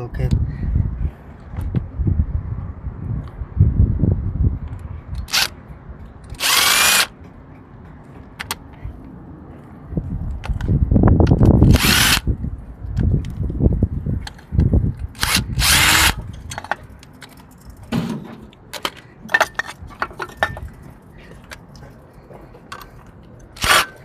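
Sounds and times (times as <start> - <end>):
clicks and metal rattles: 16.3 - 21.6.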